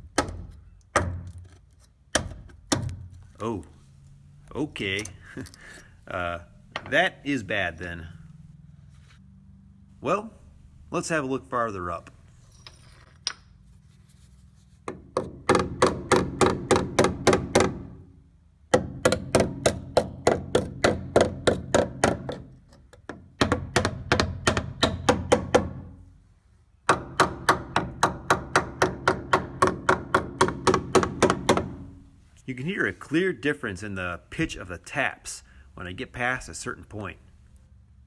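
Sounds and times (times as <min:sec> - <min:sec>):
hammer tapping on steel frame: 0:14.9 - 0:17.9, 0:18.7 - 0:25.9, 0:26.9 - 0:31.9.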